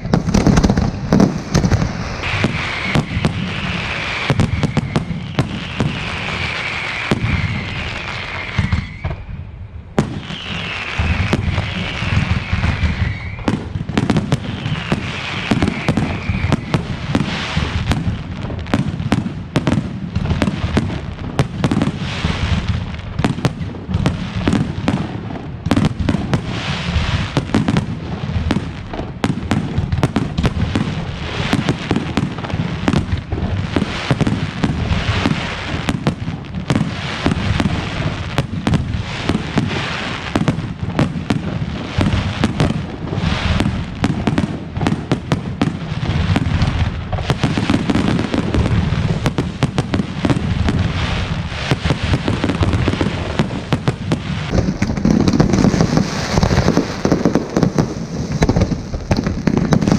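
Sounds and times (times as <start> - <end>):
falling firework whistles: 0.0 - 18.1, 36.7 - 45.0, 45.6 - 59.9
firework bangs and crackles: 0.0 - 59.9.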